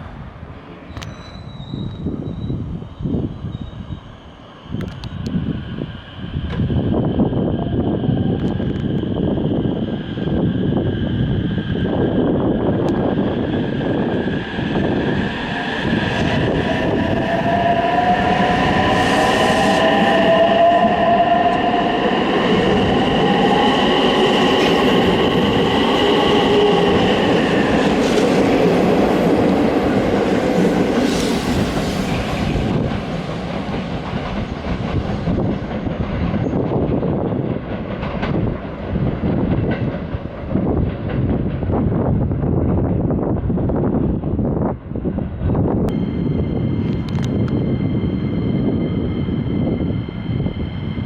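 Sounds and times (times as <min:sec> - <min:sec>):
train running on tracks: 0:00.0 - 0:51.0
high multi-tone whine: 0:45.9 - 0:51.0.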